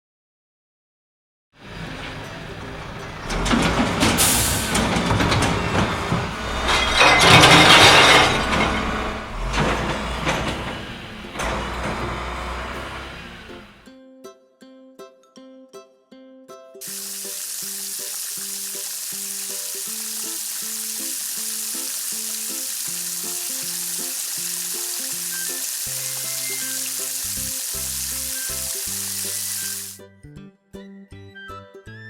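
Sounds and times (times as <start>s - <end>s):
plucked-note background music: 13.7s - 16.8s, 22.6s - 32.0s
hissing spray: 16.8s - 30.0s.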